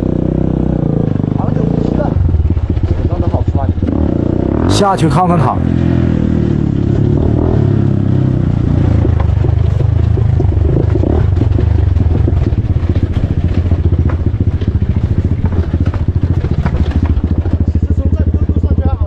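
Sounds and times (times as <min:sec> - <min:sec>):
motorcycle engine puttering: 0:00.0 - 0:19.0
light clicks and clatter: 0:09.0 - 0:17.9.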